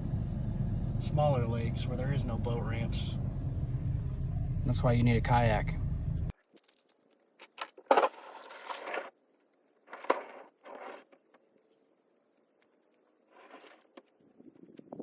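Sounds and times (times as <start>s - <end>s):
scraping and rustling: 6.5s - 15.0s.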